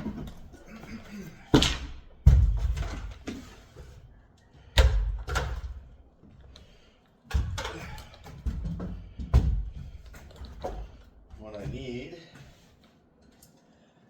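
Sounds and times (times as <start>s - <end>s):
ladder knocking and clattering: 0.0s - 4.0s, 4.6s - 6.0s, 7.3s - 12.6s.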